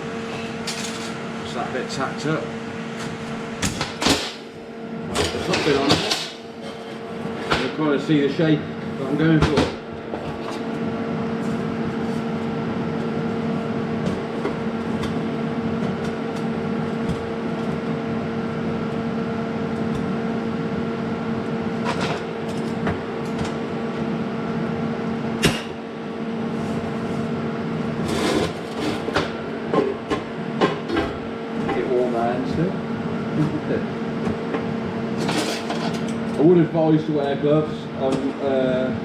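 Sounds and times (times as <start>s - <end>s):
steady mechanical hum: 0.0s - 39.0s.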